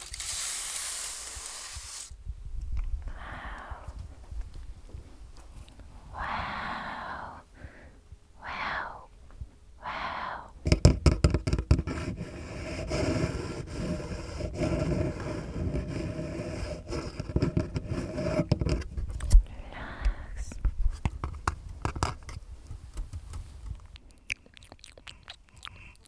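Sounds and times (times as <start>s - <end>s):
person whispering: 3.1s - 4.0s, 6.1s - 7.6s, 8.4s - 9.2s, 9.8s - 10.6s, 19.4s - 20.6s
scratching and rubbing on microphone: 10.7s - 19.3s.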